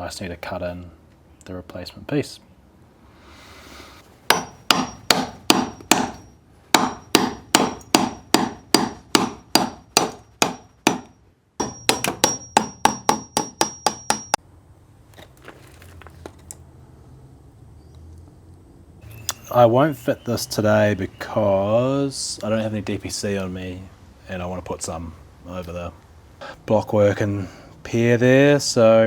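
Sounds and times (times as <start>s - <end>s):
hammer striking chisel: 4.3s - 14.4s.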